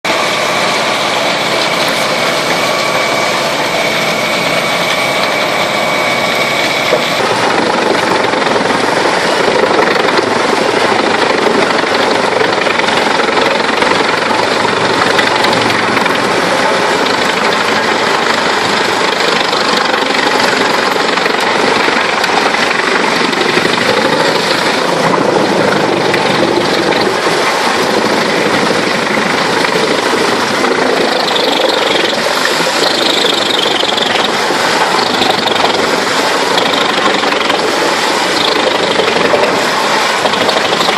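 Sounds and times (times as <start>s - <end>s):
thin whine: 0.0s - 40.9s
wood chipper running: 0.1s - 40.9s.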